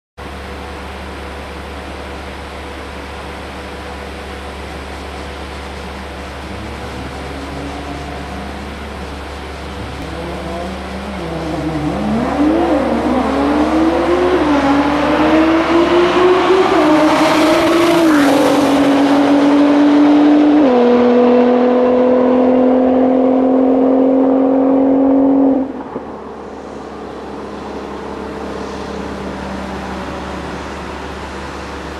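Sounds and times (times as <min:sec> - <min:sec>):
steady low hum: 0:00.7 - 0:14.7
car engine accelerating: 0:05.7 - 0:31.9.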